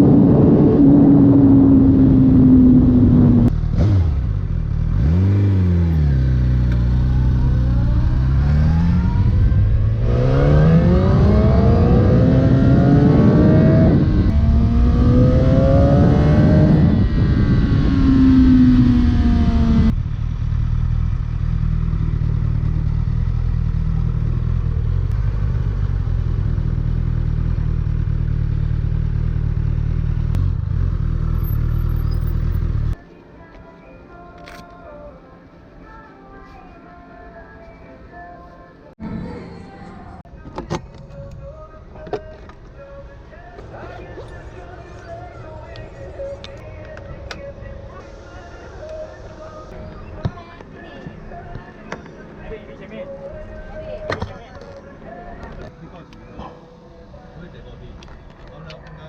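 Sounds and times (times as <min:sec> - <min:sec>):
motorcycle engine revving: 0:00.0 - 0:33.0
motorcycle engine idling: 0:19.9 - 0:33.0.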